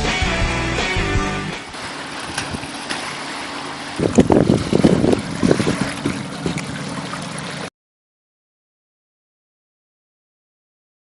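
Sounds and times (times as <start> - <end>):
wind buffeting microphone: 2.2 - 2.8, 3.9 - 6.9.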